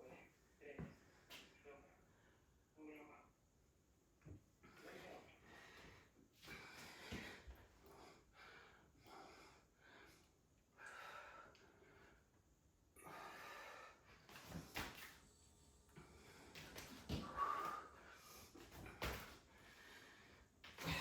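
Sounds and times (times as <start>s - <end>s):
woman breathing hard: 4.7s - 14.8s, 15.4s - 21.0s.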